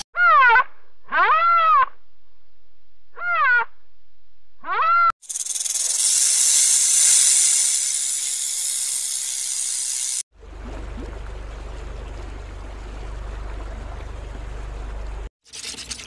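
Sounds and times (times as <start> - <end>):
rattlesnake hissing buzz: 5.2 - 10.2
faint water noise: 5.8 - 16.0
low steady hum: 10.4 - 15.3.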